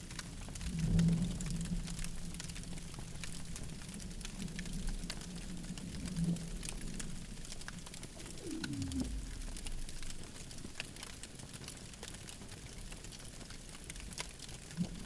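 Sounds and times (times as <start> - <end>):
campfire crackling: 0.0 - 15.0
burning wood popping: 6.4 - 15.0
short falling tone: 8.2 - 10.1
low steady tone: 8.2 - 10.4.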